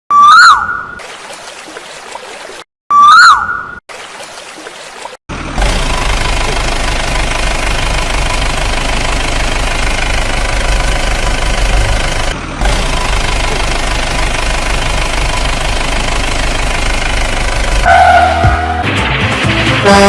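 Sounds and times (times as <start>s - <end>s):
vehicle engine rough rumble: 5.3s - 20.0s.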